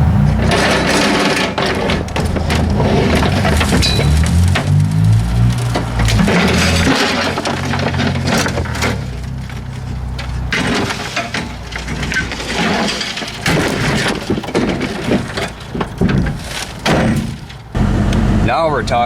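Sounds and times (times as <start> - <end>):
low engine hum: 0.0 - 12.5, 14.1 - 19.0
knocks and clatter: 0.0 - 18.4.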